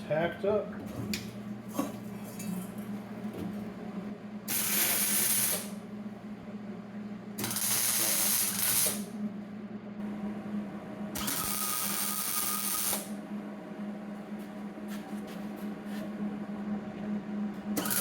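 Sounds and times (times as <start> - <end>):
steady low hum: 0.0 - 18.0
crackling welding arc: 4.5 - 5.7, 7.4 - 9.1, 11.2 - 13.1.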